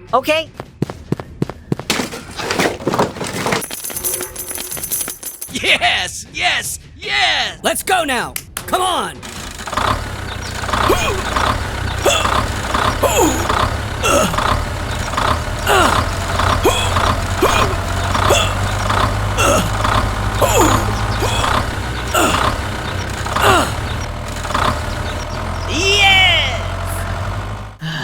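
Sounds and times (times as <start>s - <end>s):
vehicle engine running: 8.7s - 28.0s.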